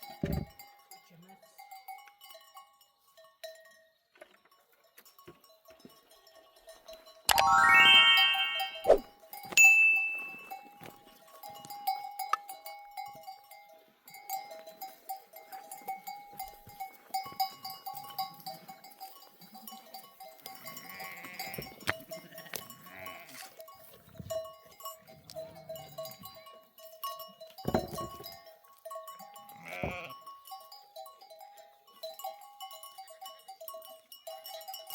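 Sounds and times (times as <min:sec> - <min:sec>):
sheep bells clinking: 0:00.0 - 0:34.9
sheep bleating: 0:20.8 - 0:21.6, 0:22.2 - 0:23.5, 0:29.6 - 0:30.2.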